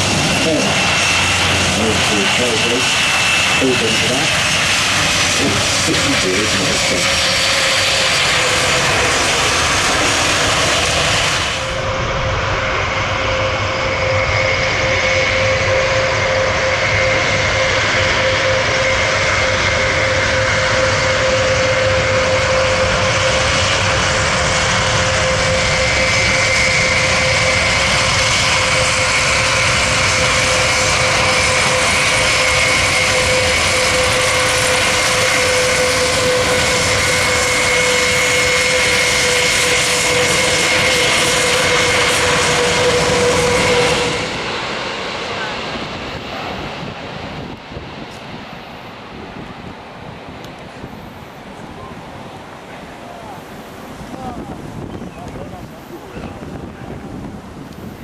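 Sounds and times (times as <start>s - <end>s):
aircraft engines roaring: 0.0s - 58.0s
engine whine: 0.0s - 58.0s.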